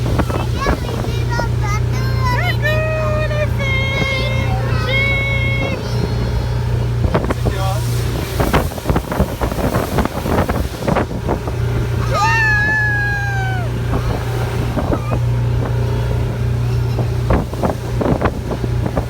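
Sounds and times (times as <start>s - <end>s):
boat hull slapping water: 0.0s - 19.0s
outboard motor running: 0.0s - 19.0s
wind on microphone: 0.0s - 19.0s
high descending call: 12.0s - 13.9s.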